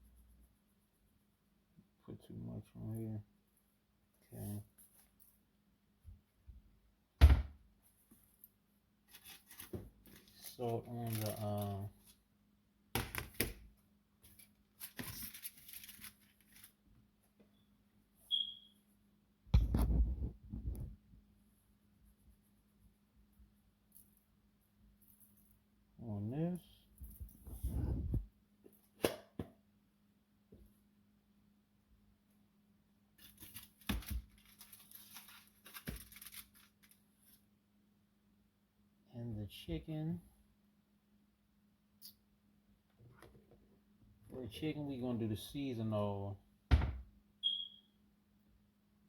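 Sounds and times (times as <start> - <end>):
short high squeak: 18.3 - 18.7.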